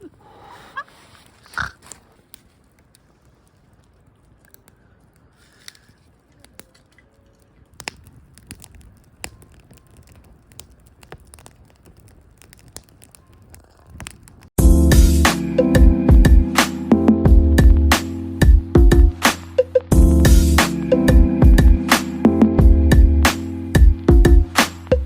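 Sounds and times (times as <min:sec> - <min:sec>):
faint clicks and crackles: 0:01.1 - 0:14.6
loud music: 0:14.6 - 0:25.0.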